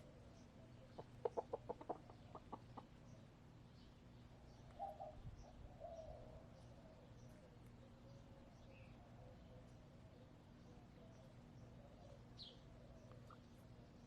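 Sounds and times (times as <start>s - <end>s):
wild birds chirping: 0.0s - 14.0s
hen clucking: 0.9s - 3.0s.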